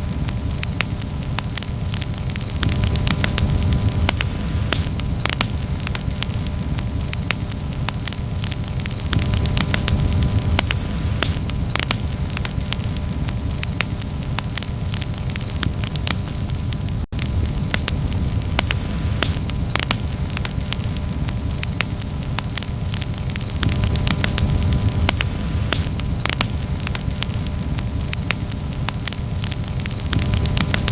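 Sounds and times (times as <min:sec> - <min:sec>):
campfire crackling and popping: 0:00.0 - 0:30.9
steady low fire rumble: 0:00.0 - 0:30.9.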